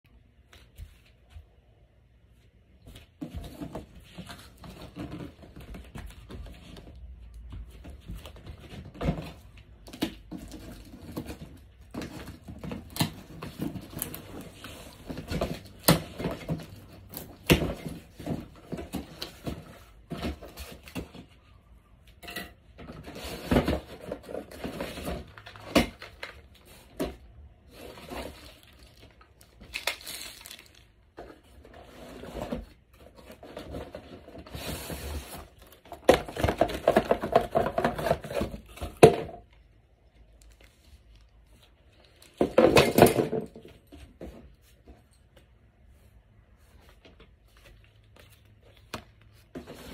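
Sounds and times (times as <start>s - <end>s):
cardboard tearing and crinkling: 27.7s - 31.0s.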